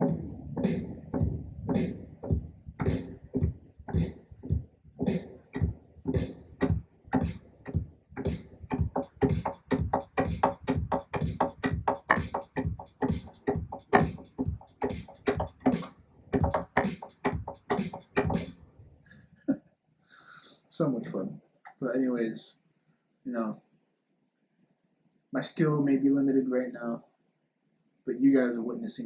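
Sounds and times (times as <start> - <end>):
drum kit beat: 0.0 - 18.6.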